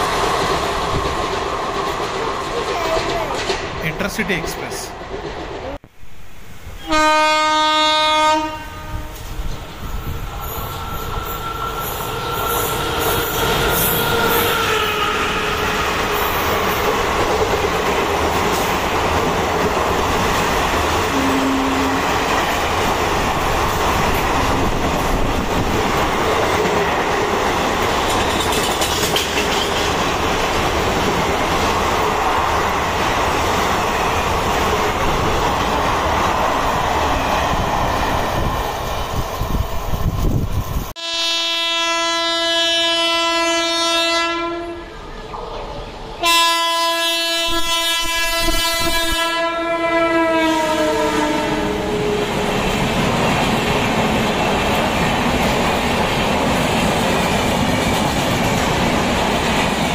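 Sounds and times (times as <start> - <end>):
train wheels clattering on rails: 0.0 - 5.8, 15.4 - 40.7, 52.1 - 59.9
train horn blast: 6.8 - 9.4, 13.1 - 15.8, 21.1 - 22.1, 41.0 - 45.0, 46.2 - 52.4.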